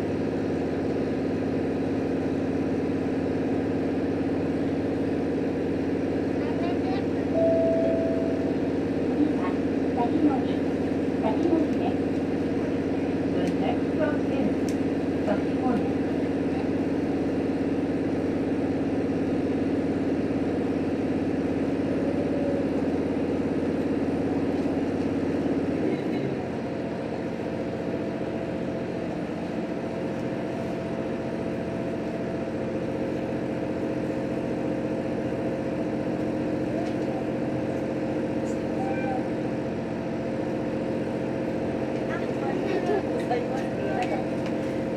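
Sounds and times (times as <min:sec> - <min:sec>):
railcar engine and running noise: 0:00.0 - 0:44.9
held tones: 0:07.4 - 0:08.6.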